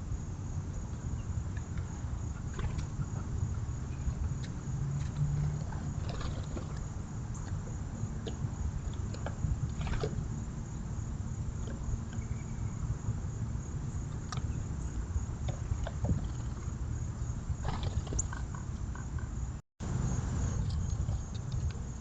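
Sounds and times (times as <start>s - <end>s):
faint bird chirps: 12.1s - 12.9s.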